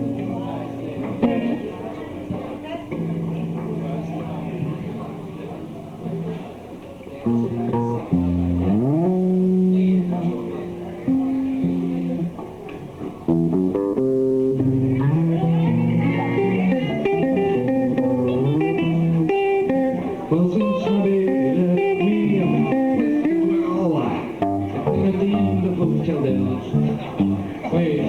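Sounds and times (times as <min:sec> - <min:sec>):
bass guitar: 0:00.0 - 0:01.6, 0:07.2 - 0:12.5, 0:13.2 - 0:28.0
electric guitar lines: 0:00.0 - 0:28.0.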